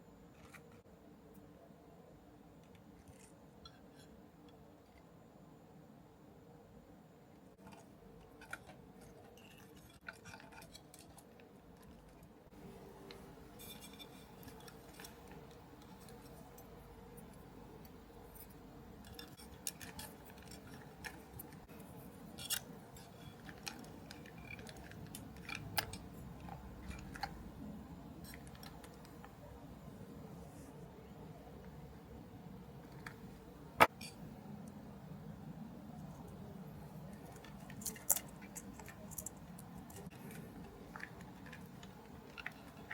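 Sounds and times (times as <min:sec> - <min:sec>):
faint steady hum: 0:00.0 - 0:42.9
plastic model parts clicking: 0:22.4 - 0:27.4, 0:37.1 - 0:42.9.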